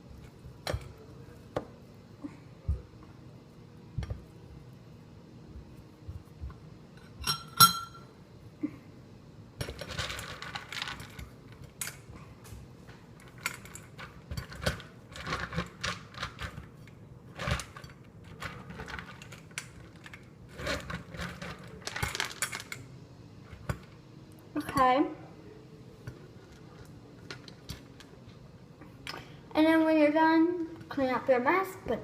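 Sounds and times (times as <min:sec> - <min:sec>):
sharp ringing clink: 0:07.2 - 0:08.1.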